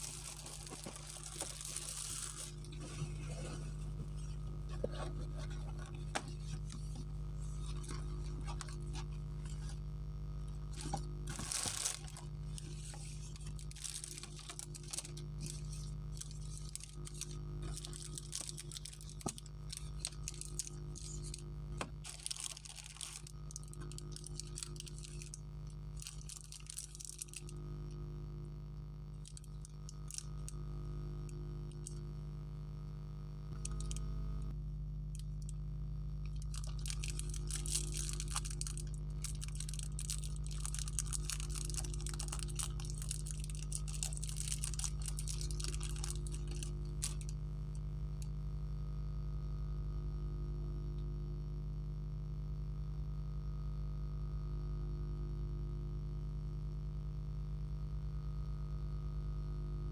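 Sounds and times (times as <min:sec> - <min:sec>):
wrapper crinkling and tearing: 0:00.0 - 0:09.8, 0:10.7 - 0:25.4, 0:26.0 - 0:27.5, 0:29.2 - 0:30.5, 0:36.3 - 0:47.4
low electrical hum: 0:00.0 - 0:59.9.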